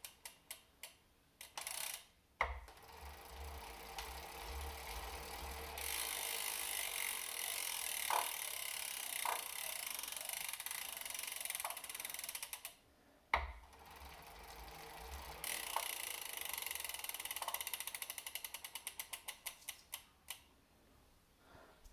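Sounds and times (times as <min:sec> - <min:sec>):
freehub ratcheting clicks: 0:00.0 - 0:12.8, 0:13.4 - 0:20.5
low rumble of pedalling: 0:02.4 - 0:10.6, 0:13.4 - 0:19.3.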